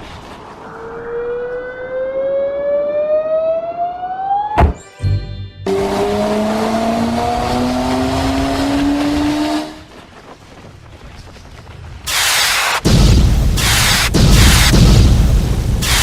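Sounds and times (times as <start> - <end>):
cartoon engine accelerating: 5.6 - 9.8
loud noisy blast: 12.1 - 16.0.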